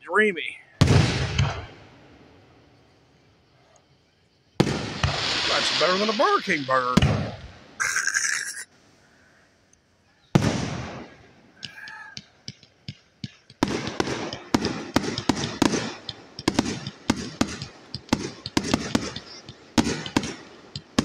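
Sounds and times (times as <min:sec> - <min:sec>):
fireworks bursting: 0:00.8 - 0:03.3, 0:04.3 - 0:08.7, 0:10.3 - 0:21.0
crackling pops: 0:10.4 - 0:21.0.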